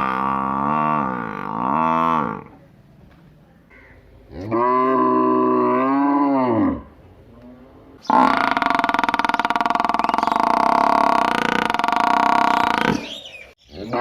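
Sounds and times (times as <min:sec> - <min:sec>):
cow lowing: 0:08.1 - 0:13.2.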